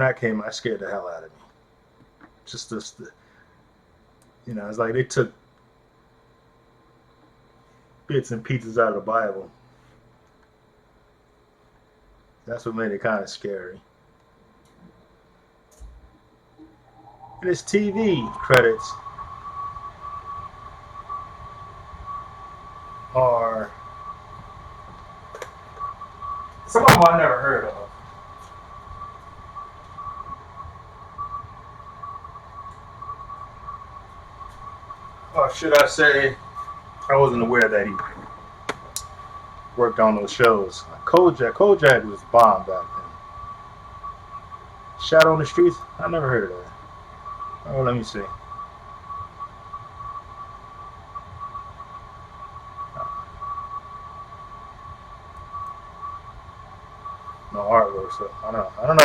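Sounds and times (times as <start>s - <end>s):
high-pitched whine: 0.0s - 59.0s
low rumble: 16.6s - 37.0s.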